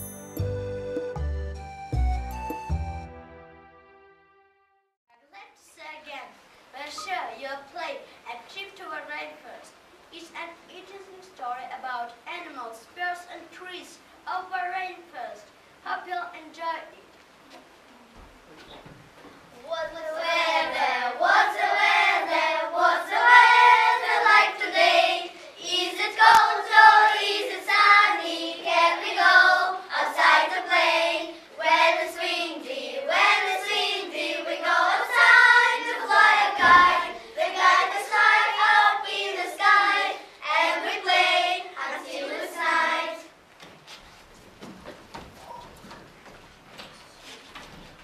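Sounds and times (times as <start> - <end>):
children singing: 20.1 - 43.3.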